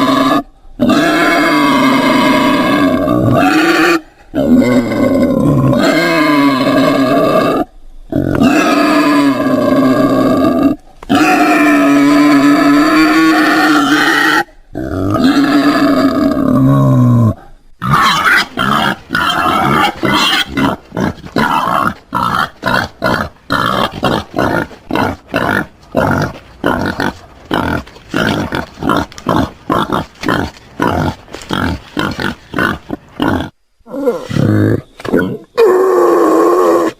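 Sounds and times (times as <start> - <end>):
wild boar calling: 0.0 - 36.9
wild boar grunting rapidly: 17.3 - 35.5.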